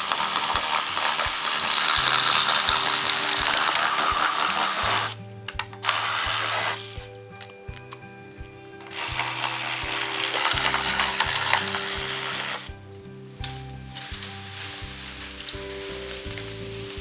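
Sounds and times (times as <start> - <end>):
reciprocating saw cutting bamboo: 0.0 - 5.2, 5.8 - 7.1, 8.8 - 12.7
background music: 0.0 - 17.0.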